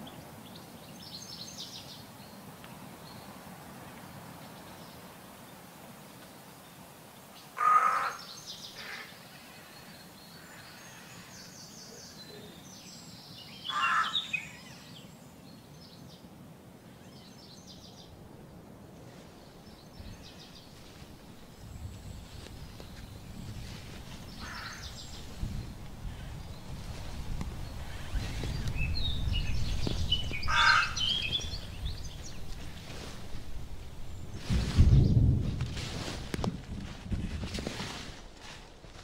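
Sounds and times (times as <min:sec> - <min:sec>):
loud bird calls: 0:07.6 - 0:12.8, 0:13.5 - 0:15.0, 0:24.2 - 0:27.0, 0:27.6 - 0:33.0.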